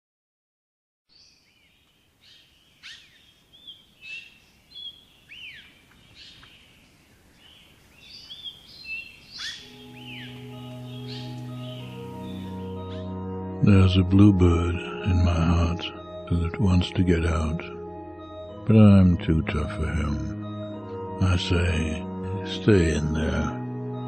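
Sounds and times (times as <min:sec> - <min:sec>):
birds chirping: 0:01.1 - 0:24.0
soft music with low held notes: 0:09.4 - 0:24.0.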